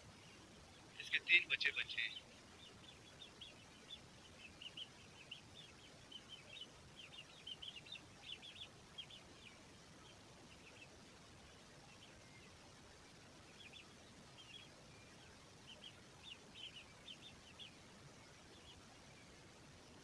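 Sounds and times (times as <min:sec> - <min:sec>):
chicks peeping: 0:00.2 - 0:20.0.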